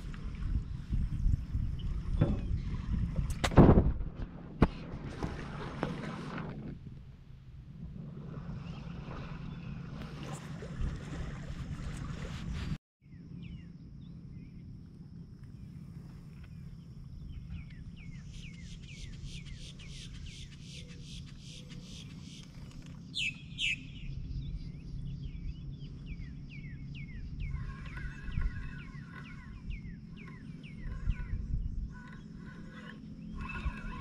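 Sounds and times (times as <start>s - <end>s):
wild birds calling: 15.6s - 34.0s.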